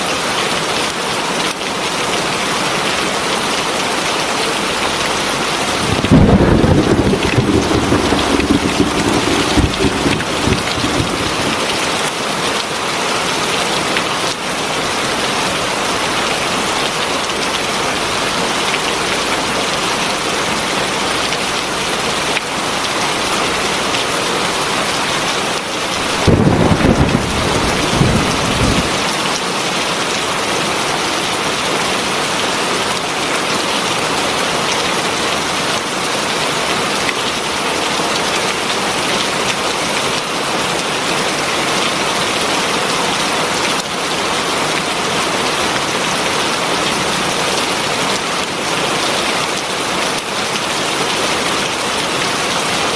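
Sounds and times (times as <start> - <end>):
heavy rain pouring: 5.2 - 13.0, 20.9 - 52.9
thunder rumbling: 5.6 - 12.0.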